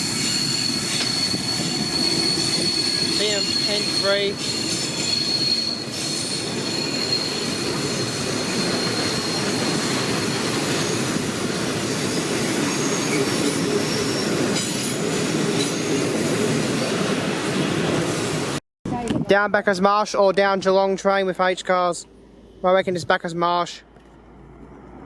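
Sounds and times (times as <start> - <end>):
train wheels squealing on rails: 0.0 - 18.5
rumble of wheels on track: 21.0 - 25.0.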